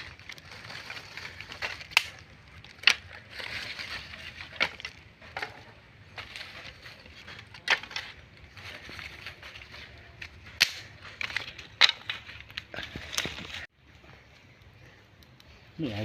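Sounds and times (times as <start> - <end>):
rustling and crunching: 0.0 - 14.9
sharp snaps and knocks: 1.5 - 3.1, 10.2 - 13.6.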